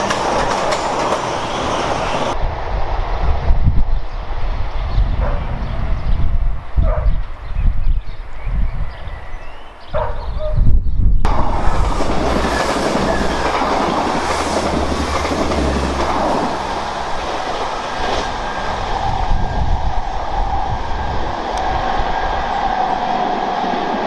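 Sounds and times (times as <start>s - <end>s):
wheels clickety-clack on rails: 0.0s - 2.4s, 11.3s - 19.1s
train passing at speed: 0.0s - 7.4s, 11.3s - 24.0s.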